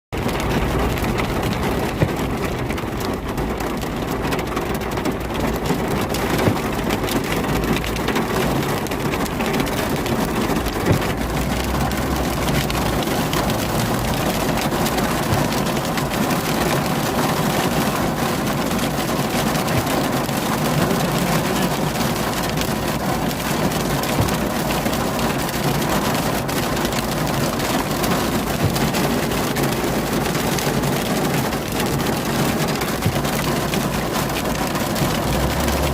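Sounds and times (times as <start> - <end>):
hail and heavy rain: 0.2 - 35.9.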